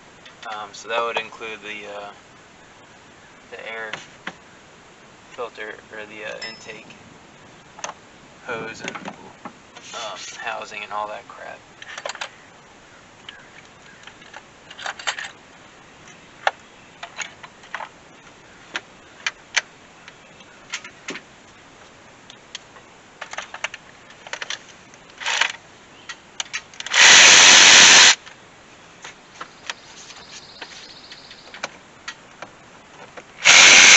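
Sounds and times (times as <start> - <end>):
clicks and knocks of parts handled: 14.0 - 15.4, 23.2 - 27.0.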